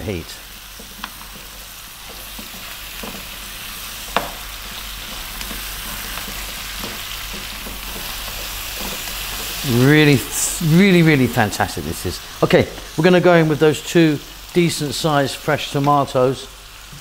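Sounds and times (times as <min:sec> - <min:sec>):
food sizzling in frying pan: 0:00.0 - 0:17.0
spatula knocking and scraping pan: 0:00.5 - 0:09.7.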